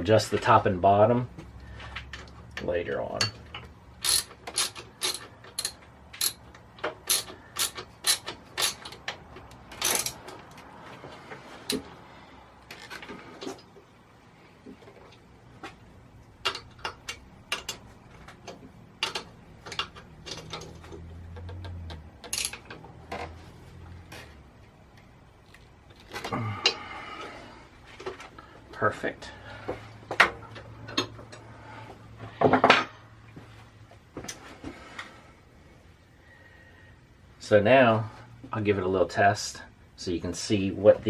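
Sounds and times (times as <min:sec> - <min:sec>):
metal clicks of hand tools: 0:02.0 - 0:10.7, 0:16.4 - 0:23.3.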